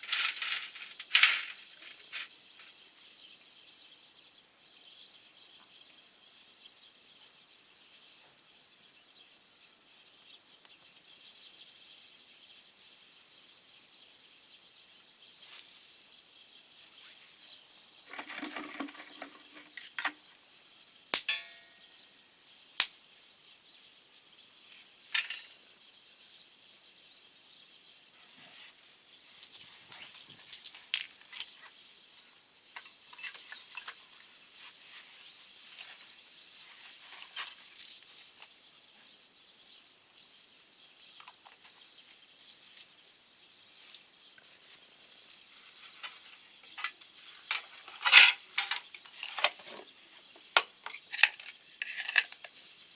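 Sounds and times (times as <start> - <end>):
metal clinks and clangs from stove: 21.2 - 22.1
rustling: 43.8 - 49.9.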